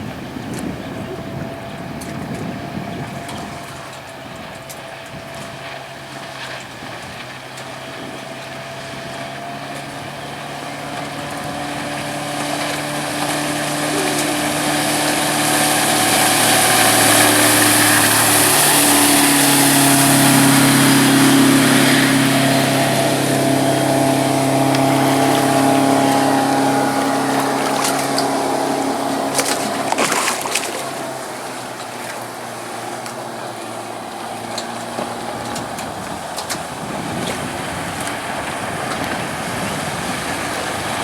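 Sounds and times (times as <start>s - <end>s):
boat engine running: 0.0s - 41.0s.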